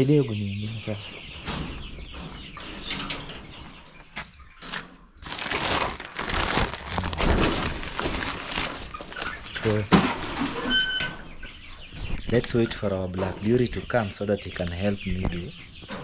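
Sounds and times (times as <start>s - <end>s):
chickens clucking: 0.0s - 16.0s
rustling and scuffling: 1.6s - 10.9s.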